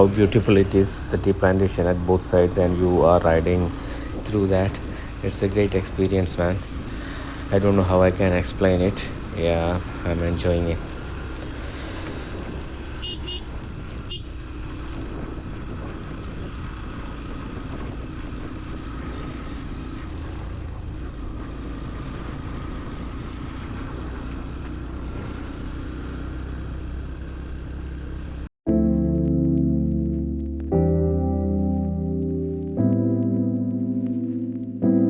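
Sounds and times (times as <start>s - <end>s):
wind noise: 0.0s - 14.1s, 14.9s - 18.8s
motorcycle engine cruising: 0.0s - 28.5s
road noise: 0.0s - 28.5s.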